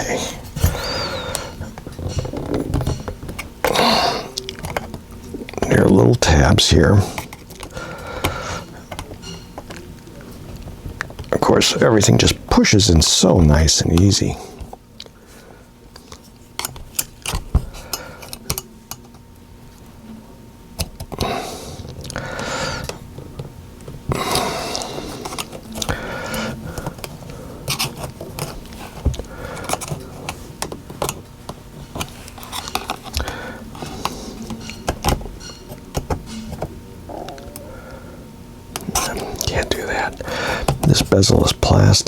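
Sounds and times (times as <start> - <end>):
plastic tabs scraping: 31.8 - 37.6.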